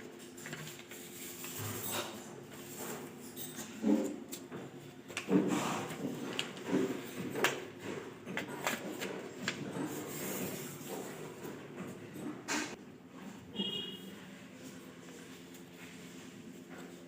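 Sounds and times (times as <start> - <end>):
paper rustling and crinkling: 0.2 - 2.8.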